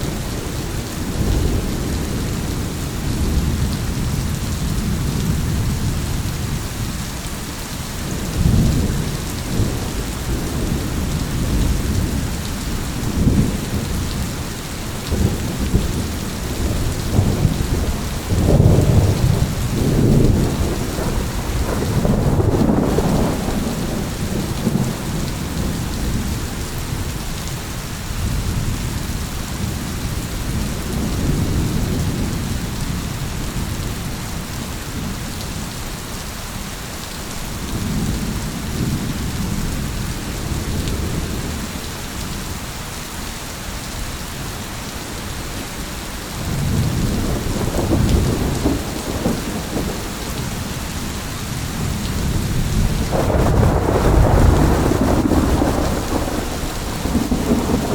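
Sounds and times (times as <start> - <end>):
heavy rain: 0.0 - 57.9
rolling thunder: 8.0 - 27.6, 46.4 - 57.9.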